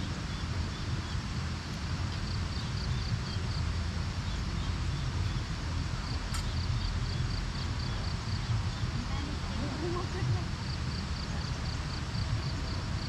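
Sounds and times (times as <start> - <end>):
wind buffeting microphone: 0.0 - 13.0
sharp click: 6.3 - 6.6.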